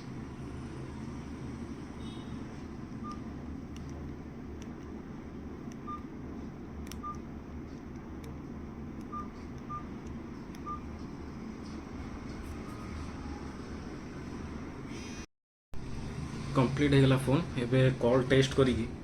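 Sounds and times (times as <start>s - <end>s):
low background hum: 0.0s - 19.0s
phone key-press beeps: 3.0s - 3.2s, 5.8s - 6.0s, 6.9s - 7.2s, 9.0s - 9.9s, 10.6s - 10.8s.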